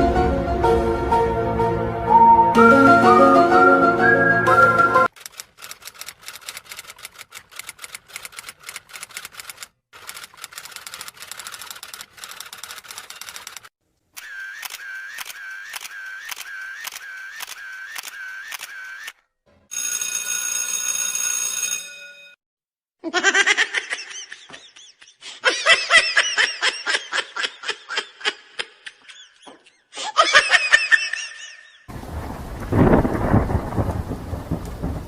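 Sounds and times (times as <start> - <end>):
held ringing tone: 19.7 - 22.4
person laughing: 23.0 - 31.9.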